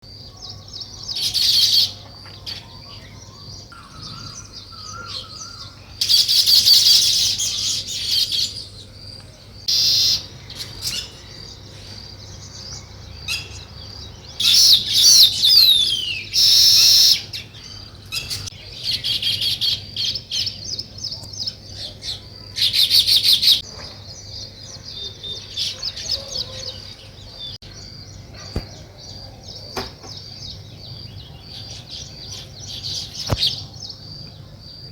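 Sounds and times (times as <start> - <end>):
birds chattering rapidly: 0.0 - 34.9
downward gliding bird call: 2.6 - 8.6.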